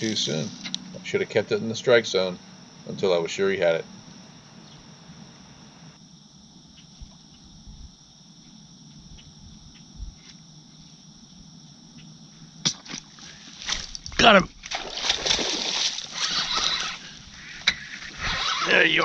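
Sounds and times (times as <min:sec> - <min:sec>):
rain hiss: 0:00.0 - 0:06.1
faint ticks: 0:00.1 - 0:01.0, 0:06.6 - 0:11.0.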